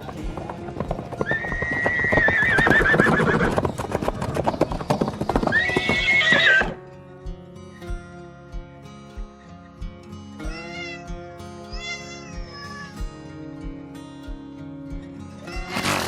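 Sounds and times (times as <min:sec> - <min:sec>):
hooves clip-clopping: 0:00.0 - 0:11.0
quiet music: 0:00.0 - 0:16.0
horse whinnying: 0:00.9 - 0:06.8, 0:15.6 - 0:16.0.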